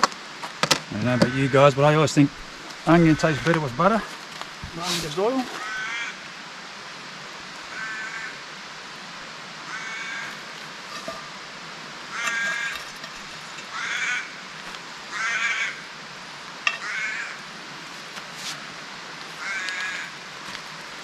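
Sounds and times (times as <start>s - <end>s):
crows cawing: 1.0s - 1.8s, 2.8s - 4.1s, 5.5s - 6.3s, 7.7s - 8.4s, 9.6s - 10.5s, 12.1s - 14.5s, 15.1s - 15.9s, 16.7s - 17.5s, 19.4s - 20.2s.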